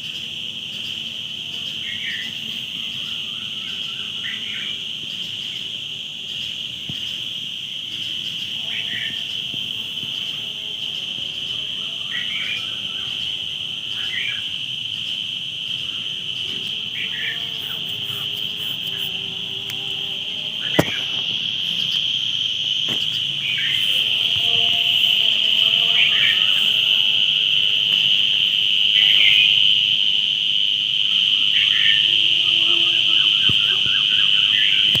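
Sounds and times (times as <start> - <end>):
high-pitched insect chorus: 0.0 - 35.0
sharp click: 20.8 - 21.2.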